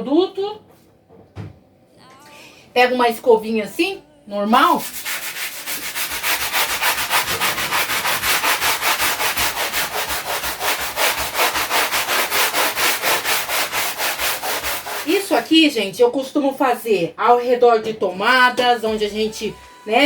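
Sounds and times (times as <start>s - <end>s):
scrub brush scrubbing a wall: 4.6s - 15.5s.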